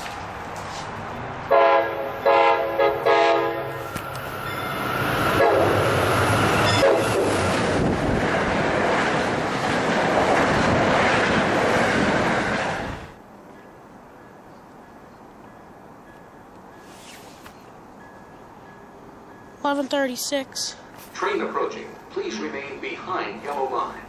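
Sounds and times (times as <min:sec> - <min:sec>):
train passing at speed: 0:00.0 - 0:24.0
train horn blasts: 0:01.5 - 0:03.8, 0:05.3 - 0:06.0, 0:06.6 - 0:07.3.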